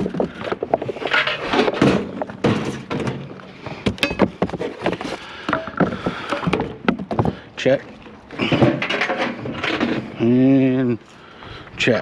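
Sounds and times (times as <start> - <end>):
scrap items knocking and thunking: 0.0 - 7.5, 8.4 - 10.2.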